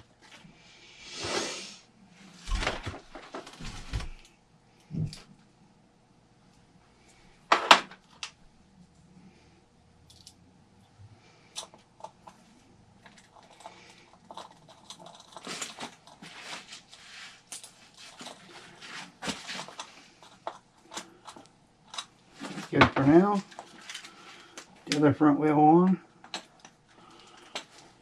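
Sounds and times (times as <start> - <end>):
small parts clicking and rustling: 10.0 - 28.0.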